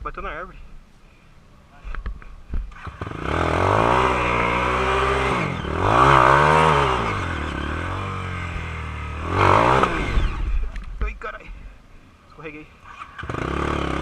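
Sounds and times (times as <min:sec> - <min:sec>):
motorcycle engine revving: 0:02.7 - 0:10.9, 0:12.8 - 0:14.0.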